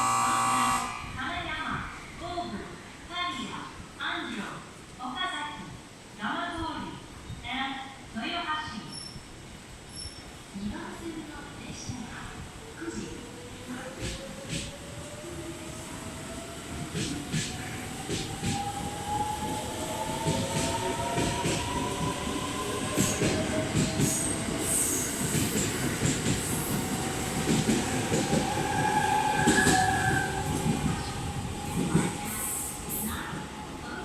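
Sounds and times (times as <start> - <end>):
electric train motor whine: 0.0 - 1.2
train wheel squeal: 8.9 - 9.3, 9.9 - 10.4, 28.4 - 33.4.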